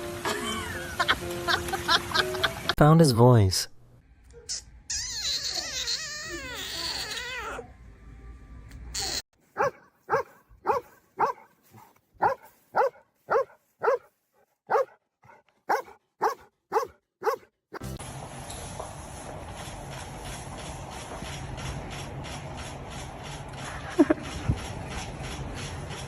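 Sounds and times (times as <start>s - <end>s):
dog yipping: 4.3s - 7.7s, 9.0s - 14.1s, 14.7s - 15.0s, 15.7s - 17.4s.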